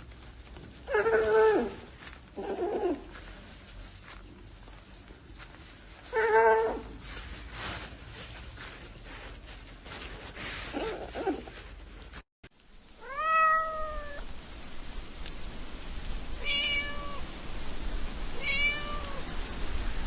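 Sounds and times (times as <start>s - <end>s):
steady background hiss: 0.0s - 20.0s
cat meowing: 13.0s - 14.2s, 16.4s - 17.2s, 18.3s - 19.3s.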